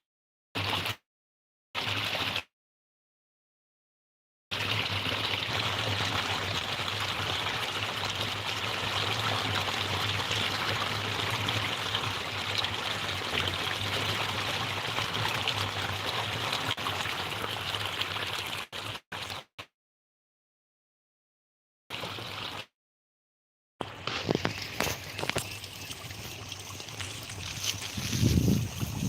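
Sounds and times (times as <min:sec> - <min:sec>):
flowing water rushing: 0:04.6 - 0:18.9, 0:23.8 - 0:29.0.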